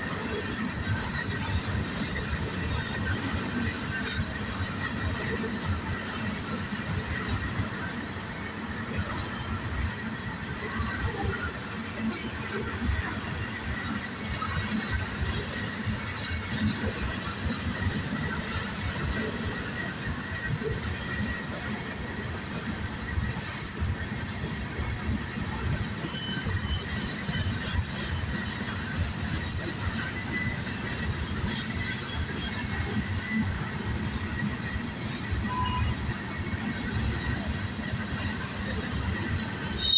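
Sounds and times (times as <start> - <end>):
railcars rumbling: 0.0 - 39.9
faint high wheel squeal: 25.9 - 39.9.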